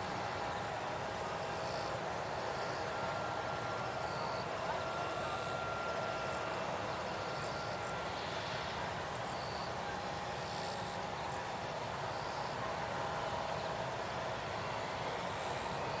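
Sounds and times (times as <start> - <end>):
faint steady whine: 0.0 - 16.0
insects chirring: 7.1 - 16.0.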